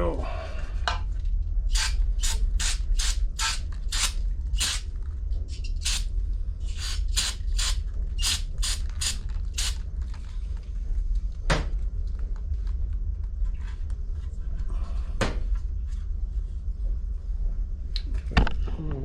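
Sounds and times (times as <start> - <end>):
aerosol spray bursts: 1.8 - 4.8, 6.8 - 9.8.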